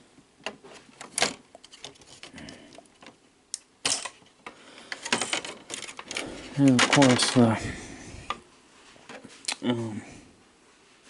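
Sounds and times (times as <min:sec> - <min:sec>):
plastic and metal parts clicking: 0:04.9 - 0:07.4.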